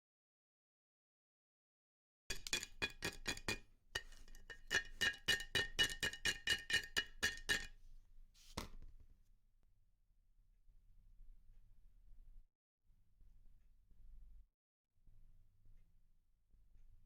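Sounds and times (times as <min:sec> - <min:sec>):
metal-on-metal taps: 0:02.3 - 0:07.7.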